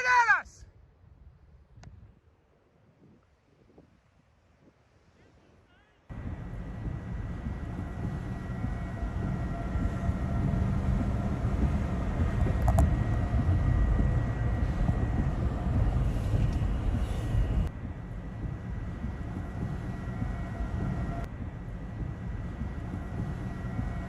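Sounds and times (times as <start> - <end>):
tornado rumbling roar: 6.1 - 24.0.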